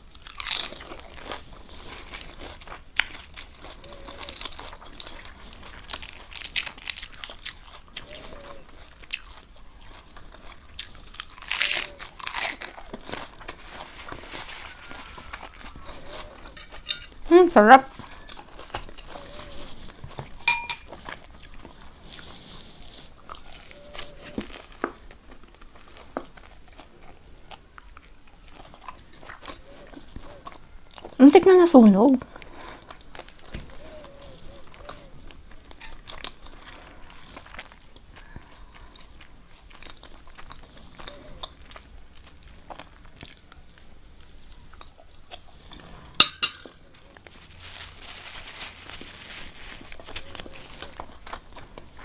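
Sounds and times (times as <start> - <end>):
person chewing food: 0.0 - 31.2, 32.2 - 52.0
short ringing clink: 20.5 - 20.9.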